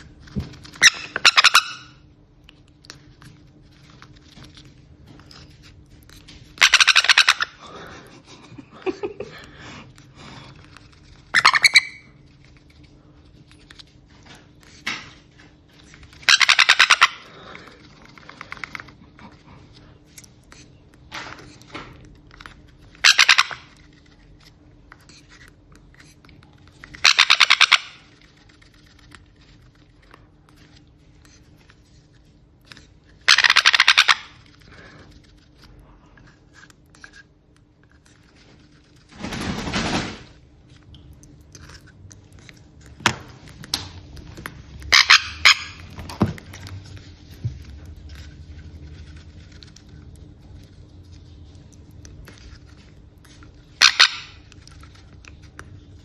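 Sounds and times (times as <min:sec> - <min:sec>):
parrot chick begging squawks: 0:00.8 - 0:02.0, 0:06.6 - 0:07.6, 0:11.3 - 0:12.1, 0:16.2 - 0:17.3, 0:23.0 - 0:23.7, 0:27.0 - 0:28.1, 0:33.2 - 0:34.4, 0:44.8 - 0:45.9, 0:53.8 - 0:54.4.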